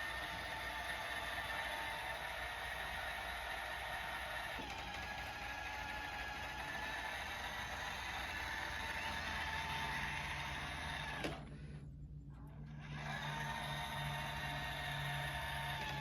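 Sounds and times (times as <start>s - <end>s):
robot vacuum whine: 0.0s - 11.5s, 12.8s - 16.0s
low hum: 11.0s - 13.0s.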